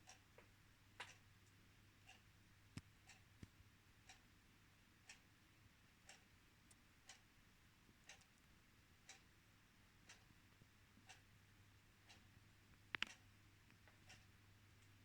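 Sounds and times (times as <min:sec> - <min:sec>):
clock ticking: 0:07.0 - 0:07.2, 0:09.0 - 0:09.2, 0:12.9 - 0:13.2.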